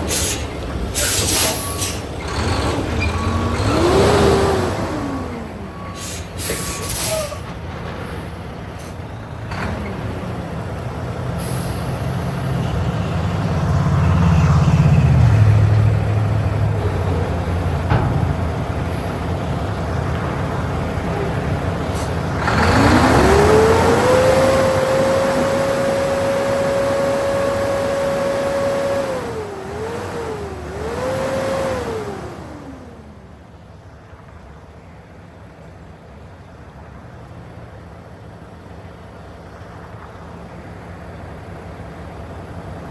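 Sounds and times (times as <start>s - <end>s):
air brakes hissing: 0.0s - 9.2s, 11.3s - 12.3s, 21.2s - 24.8s
truck diesel engine: 0.0s - 42.9s.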